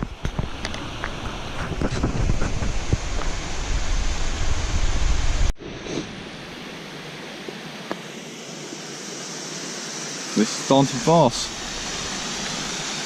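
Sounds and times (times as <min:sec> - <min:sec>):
waterfall rushing: 0:09.2 - 0:13.0.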